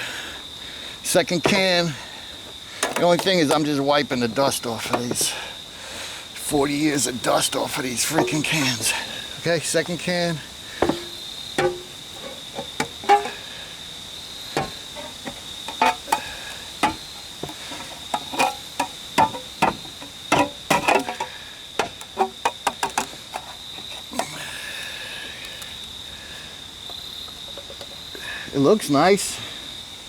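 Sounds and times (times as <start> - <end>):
high cricket trill: 0.0 - 30.0
metal taps on oil can: 8.1 - 9.0, 10.8 - 13.4, 14.6 - 23.5.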